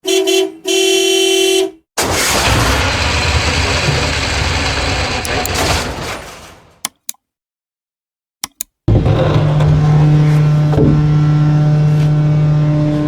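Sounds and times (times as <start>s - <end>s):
vehicle horn honking: 0.0s - 1.8s
engine revving: 2.0s - 5.9s, 8.9s - 13.0s.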